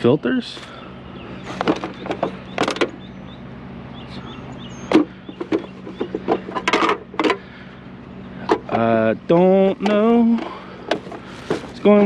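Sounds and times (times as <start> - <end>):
steady low hum: 0.0 - 12.0
scrap items knocking and clattering: 1.6 - 2.9, 4.9 - 7.4, 10.9 - 11.8.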